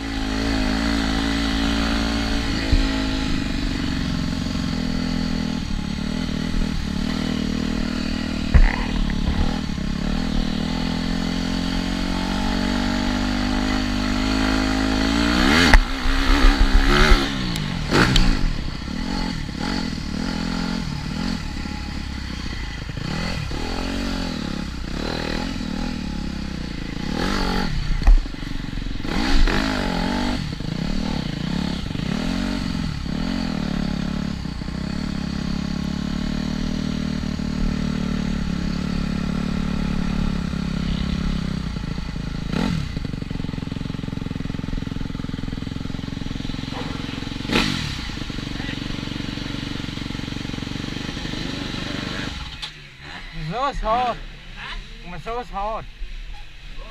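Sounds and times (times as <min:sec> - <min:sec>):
motocross bike engine revving: 0:00.0 - 0:56.0
sharp thumps: 0:06.5 - 0:11.0.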